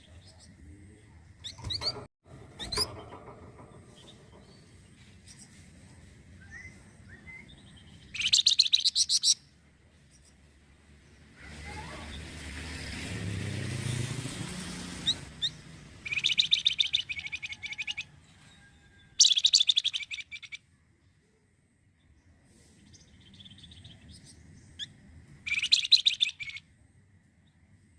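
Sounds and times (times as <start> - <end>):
songbird chattering song: 3.9 - 11.2, 15.0 - 18.1, 19.2 - 20.7, 22.0 - 26.7.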